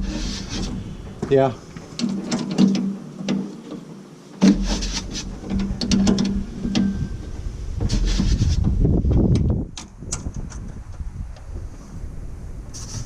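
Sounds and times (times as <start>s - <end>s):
metal hand tools clanking: 0.0s - 8.2s
low rumble: 4.5s - 9.8s.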